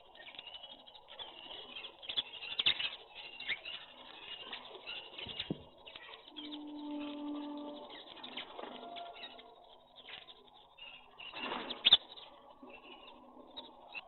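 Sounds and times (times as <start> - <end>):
small birds chirping: 0.0 - 14.0
pigeons cooing: 1.2 - 9.6.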